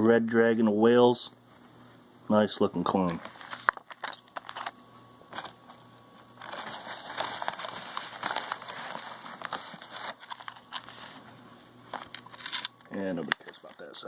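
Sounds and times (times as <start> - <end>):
plastic packaging crinkling: 3.0 - 14.0.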